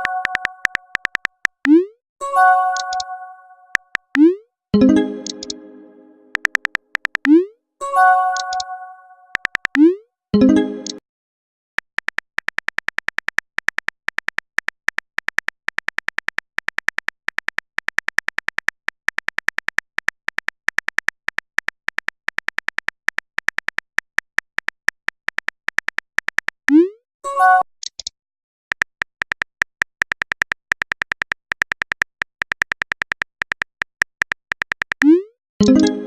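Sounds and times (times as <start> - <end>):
phone keyboard tapping clicks: 0.0 - 1.8, 2.7 - 3.1, 5.2 - 5.6, 6.3 - 7.4, 9.3 - 9.9, 28.7 - 36.0
message sent pop: 0.0 - 7.5, 35.6 - 36.0.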